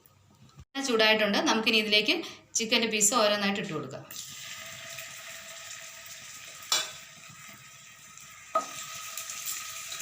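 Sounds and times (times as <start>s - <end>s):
chicken sizzling in hot oil: 4.1s - 10.0s
food dropped into hot oil: 6.7s - 7.1s.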